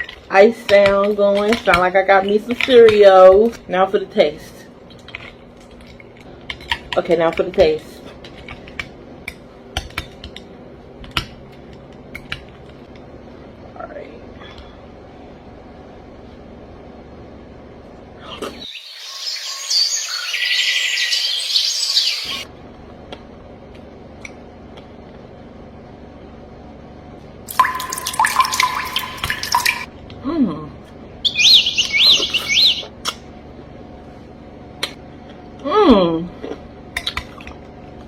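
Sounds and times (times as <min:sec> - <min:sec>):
soft drip-like ticks: 0:27.5 - 0:29.9.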